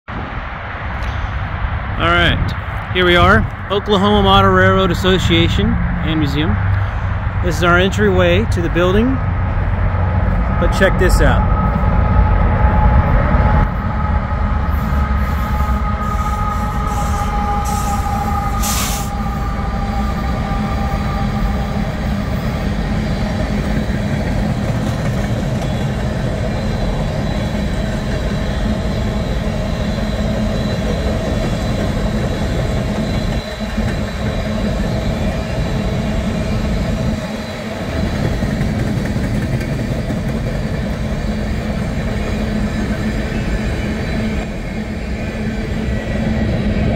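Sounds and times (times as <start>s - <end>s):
train rumbling past: 0.1s - 46.9s
steady high tones: 7.4s - 24.2s.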